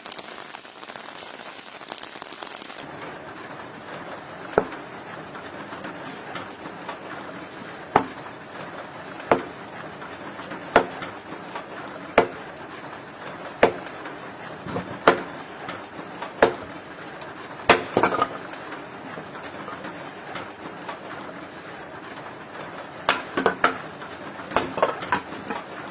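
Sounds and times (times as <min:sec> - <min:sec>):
axe chopping wood: 0:09.3 - 0:09.6, 0:10.8 - 0:11.0, 0:12.2 - 0:12.4, 0:13.6 - 0:13.9, 0:14.8 - 0:15.3, 0:16.4 - 0:16.7, 0:17.7 - 0:18.4, 0:24.5 - 0:25.3.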